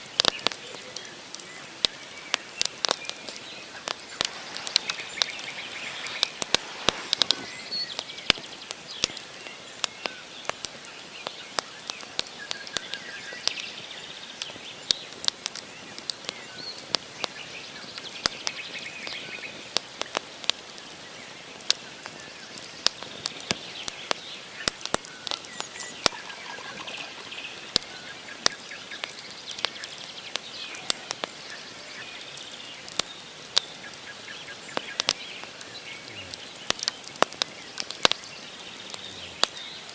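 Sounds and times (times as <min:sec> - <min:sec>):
campfire crackling and popping: 0:00.0 - 0:39.9
faint bird chirps: 0:00.3 - 0:10.4, 0:23.4 - 0:39.9.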